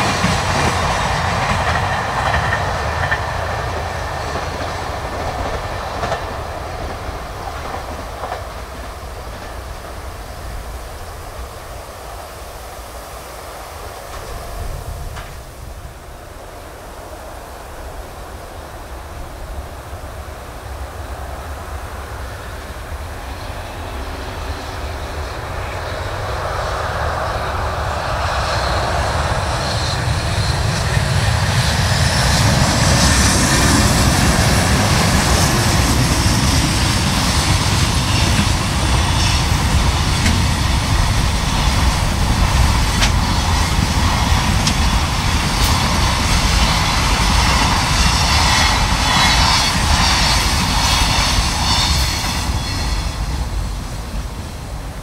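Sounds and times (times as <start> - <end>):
freight train rolling past: 0.0 - 55.0.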